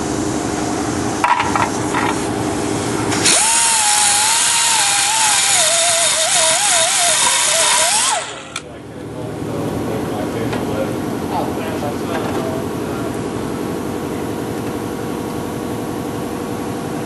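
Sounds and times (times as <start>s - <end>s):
steady low hum: 0.0s - 17.0s
power tool grinding sheet metal: 3.1s - 8.6s.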